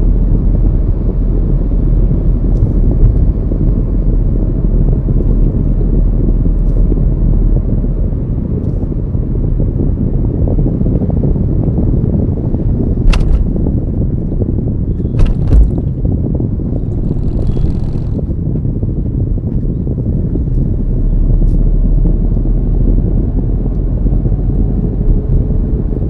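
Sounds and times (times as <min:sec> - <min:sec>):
car road and engine rumble: 0:00.0 - 0:26.0
wind buffeting microphone: 0:00.0 - 0:26.0
sharp click: 0:13.0 - 0:13.6.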